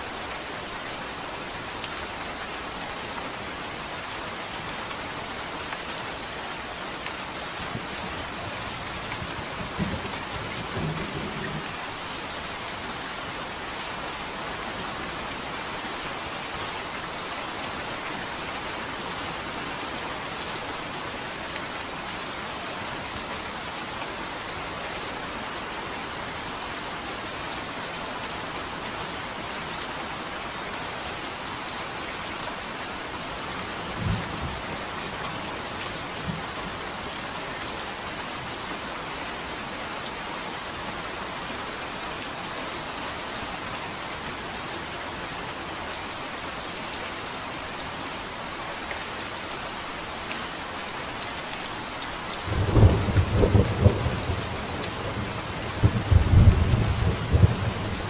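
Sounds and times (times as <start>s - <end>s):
steady rain: 0.0s - 58.0s
low rumbles of thunder: 52.5s - 58.0s.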